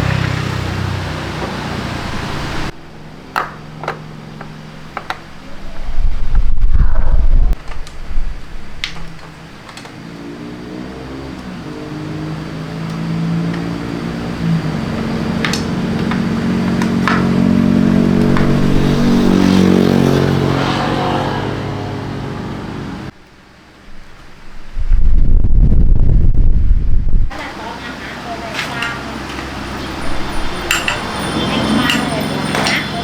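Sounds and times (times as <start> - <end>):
small engine running: 27.3 - 33.0.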